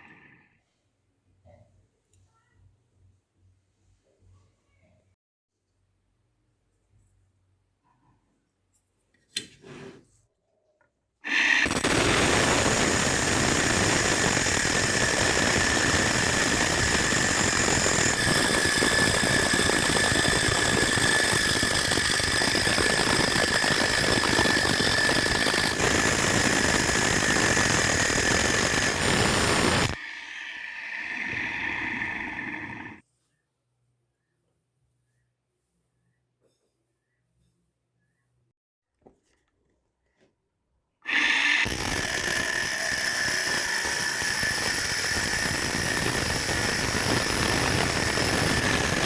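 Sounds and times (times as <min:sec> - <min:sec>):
angle grinder grinding with whine: 0:11.2 - 0:33.0, 0:41.0 - 0:49.0.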